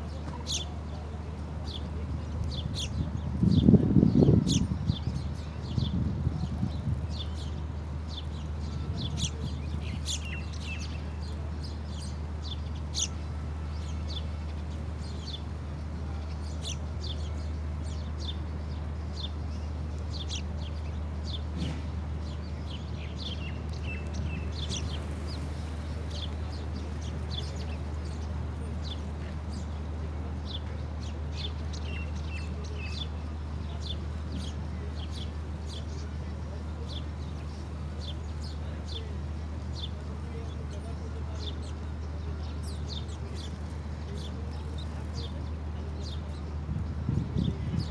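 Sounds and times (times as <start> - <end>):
small birds chirping: 1.6 - 29.8, 30.4 - 47.9.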